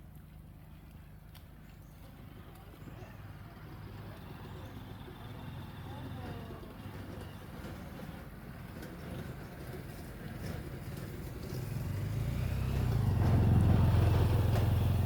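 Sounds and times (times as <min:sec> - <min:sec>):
tractor engine droning: 0:03.5 - 0:15.0.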